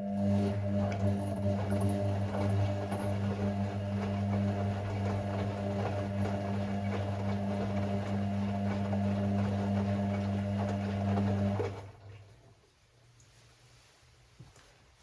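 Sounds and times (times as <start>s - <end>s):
washing machine drain pump humming: 0.0s - 12.6s.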